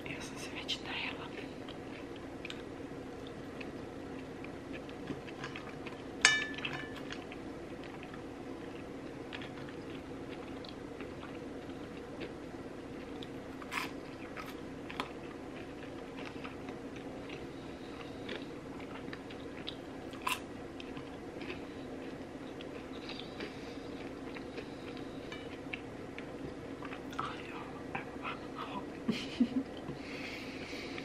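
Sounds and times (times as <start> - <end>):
steady low hum: 0.0 - 31.0
close-up chewing and biting: 1.3 - 27.2.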